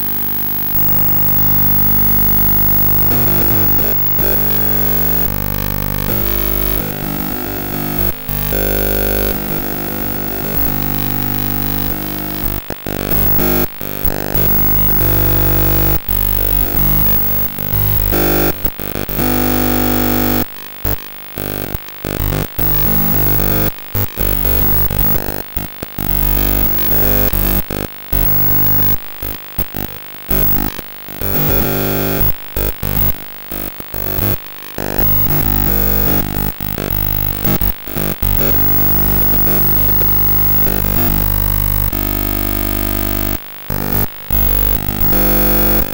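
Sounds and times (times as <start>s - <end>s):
glitchy electronic buzzing: 0.0s - 20.5s, 29.8s - 45.9s.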